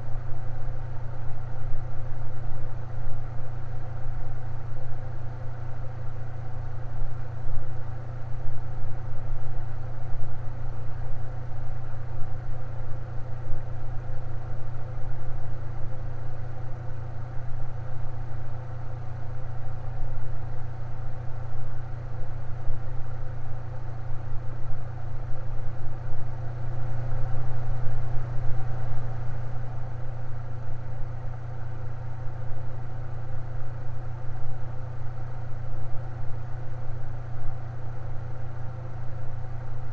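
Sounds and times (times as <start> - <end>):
electric fan motor hum: 10.5 - 39.9.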